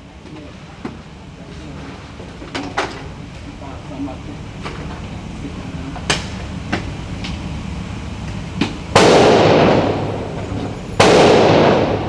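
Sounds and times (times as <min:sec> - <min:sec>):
loud handgun shots: 0:08.9 - 0:12.0
faint gunshots: 0:09.0 - 0:12.0.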